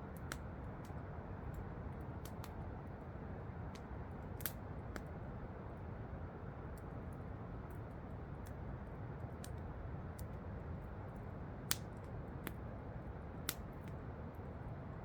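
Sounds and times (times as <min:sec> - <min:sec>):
campfire crackling and popping: 0:00.1 - 0:02.6, 0:03.7 - 0:05.1, 0:11.6 - 0:12.7, 0:13.4 - 0:14.0.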